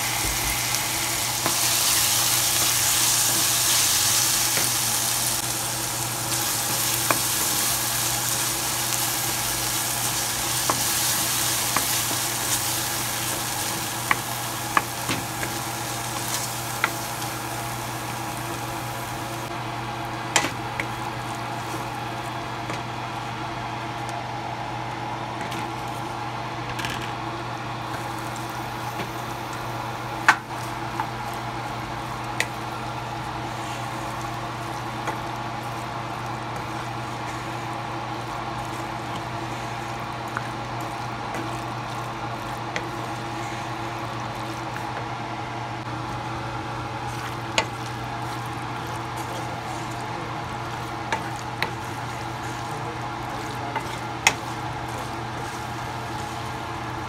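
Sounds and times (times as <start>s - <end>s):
meat sizzling in a pan: 0.0s - 22.6s, 45.9s - 57.0s
stirring and scraping: 30.5s - 45.2s, 45.8s - 57.0s.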